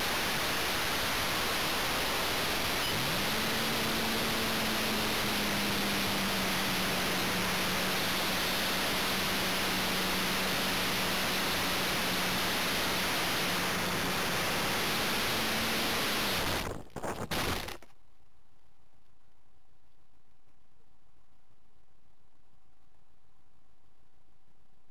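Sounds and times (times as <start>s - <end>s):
electric motor humming: 0.0s - 16.7s
faint electronic hum: 0.0s - 16.7s.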